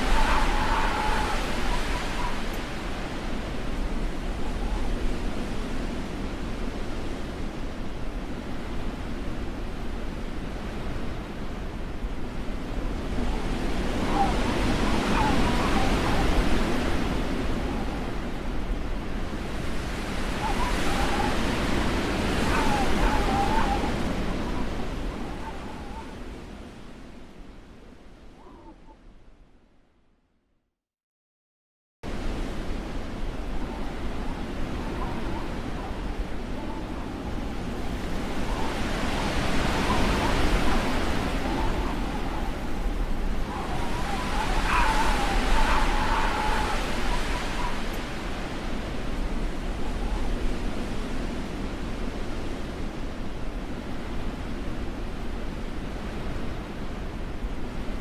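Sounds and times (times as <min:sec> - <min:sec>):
faint wavering whistle: 0:00.0 - 0:03.5, 0:20.4 - 0:26.2, 0:33.7 - 0:48.4
blizzard wind rushing: 0:00.0 - 0:28.3, 0:32.1 - 0:58.0
whistling howl of wind: 0:00.0 - 0:29.5, 0:32.1 - 0:58.0.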